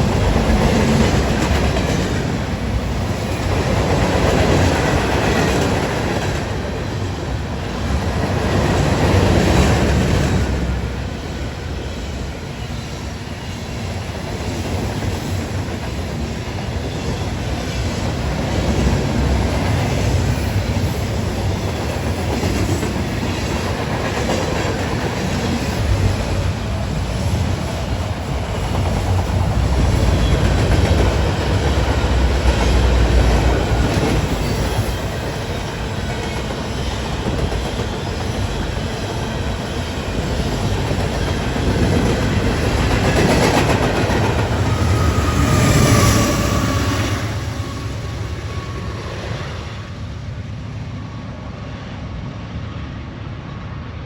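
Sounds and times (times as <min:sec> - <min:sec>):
freight train rumbling by: 0:00.0 - 0:54.0
wheels clacking over rail joints: 0:18.2 - 0:47.0.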